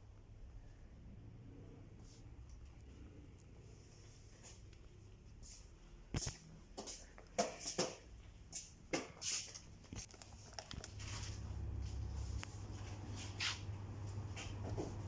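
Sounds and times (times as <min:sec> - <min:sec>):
low steady hum: 0:00.0 - 0:07.3, 0:09.9 - 0:15.0
rustling and crinkling: 0:03.7 - 0:15.0.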